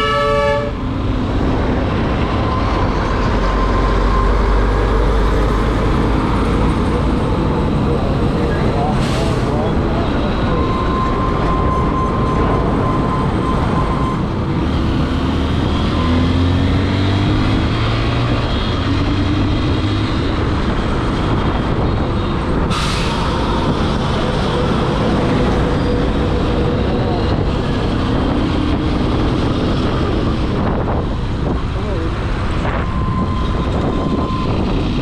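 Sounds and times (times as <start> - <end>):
wind rumble on microphone: 16.7 - 35.0.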